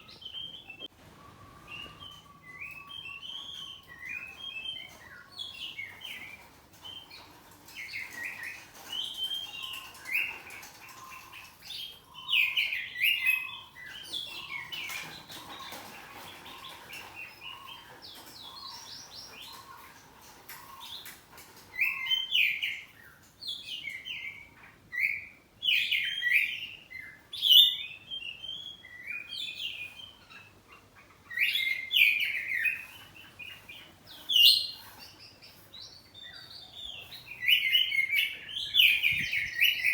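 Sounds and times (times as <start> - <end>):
bird singing whistles and chirps: 0.0 - 7.0, 21.8 - 30.5, 35.8 - 39.9.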